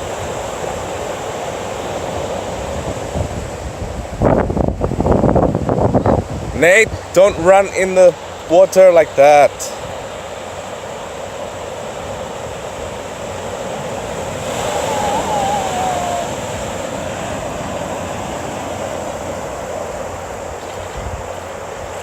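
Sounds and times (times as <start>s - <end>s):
small waves washing ashore: 0.0s - 22.0s
wind on microphone: 2.2s - 7.1s, 12.1s - 19.8s, 20.5s - 22.0s
faint wavering cry: 14.5s - 17.0s.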